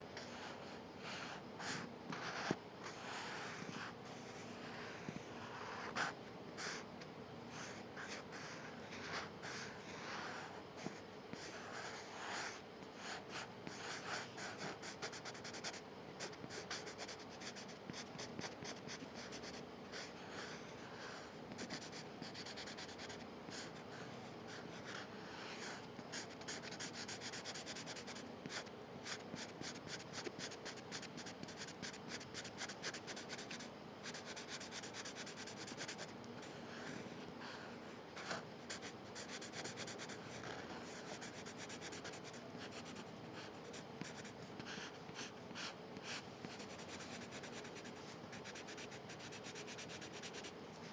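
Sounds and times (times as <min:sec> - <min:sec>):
faint steady hum: 0:00.0 - 0:50.9
pencil scratching on paper: 0:00.2 - 0:06.8, 0:07.5 - 0:37.6.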